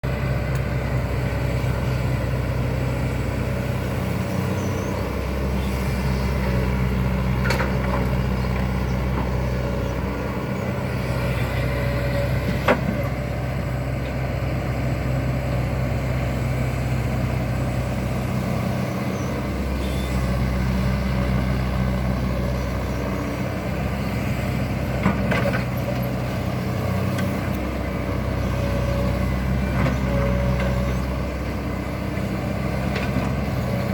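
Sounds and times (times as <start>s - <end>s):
excavator engine running: 0.0s - 33.9s.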